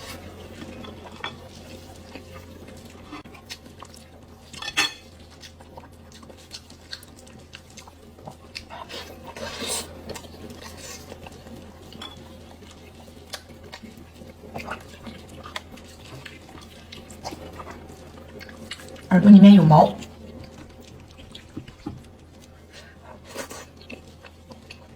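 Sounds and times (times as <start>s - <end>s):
low steady hum: 0.0s - 24.9s
cutlery and dishes clinking: 4.5s - 5.2s, 11.9s - 12.3s.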